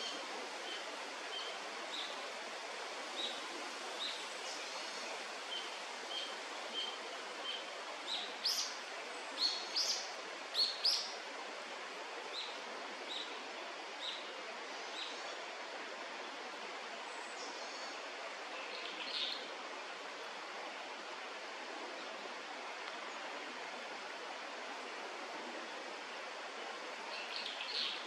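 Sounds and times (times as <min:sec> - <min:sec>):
steady outdoor hiss: 0:00.0 - 0:28.0.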